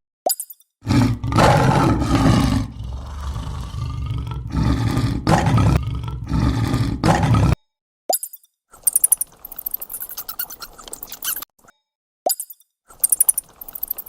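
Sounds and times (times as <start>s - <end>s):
animal roaring: 0.8s - 7.6s.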